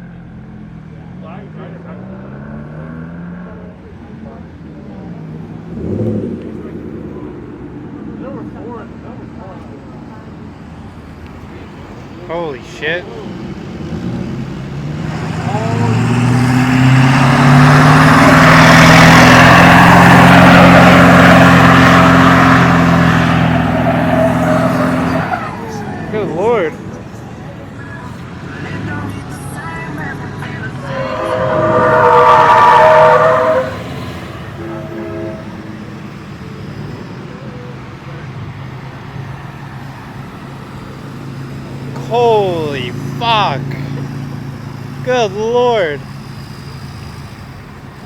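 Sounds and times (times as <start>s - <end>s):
loud vehicle engine and exhaust: 0.0s - 48.0s
faint horn note: 34.5s - 35.8s.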